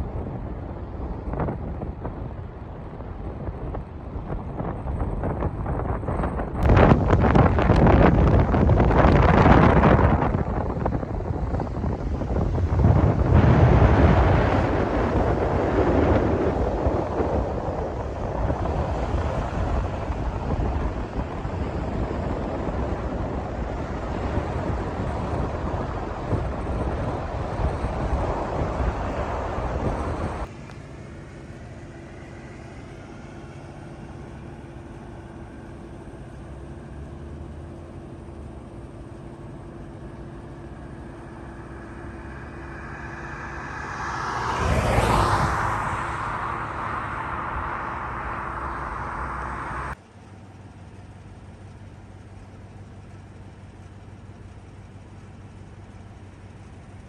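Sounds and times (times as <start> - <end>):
steady low hum: 0.0 - 30.6, 38.2 - 50.0
motor vehicle passing by: 6.6 - 30.5, 40.7 - 50.0.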